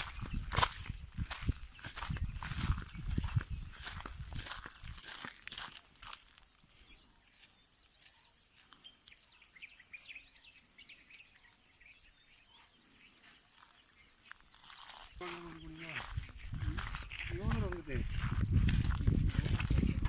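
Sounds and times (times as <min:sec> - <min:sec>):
high-pitched insect drone: 0:00.0 - 0:07.4
birds twittering: 0:00.0 - 0:20.0.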